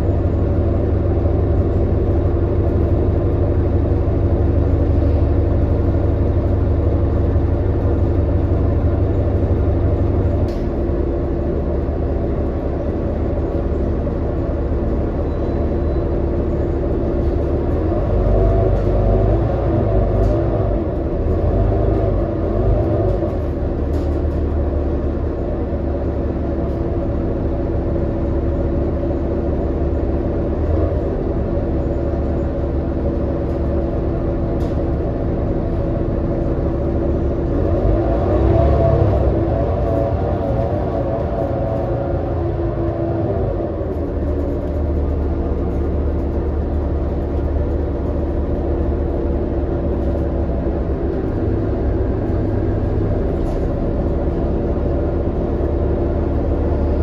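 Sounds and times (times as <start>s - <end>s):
bus engine rumble: 0.0s - 57.0s.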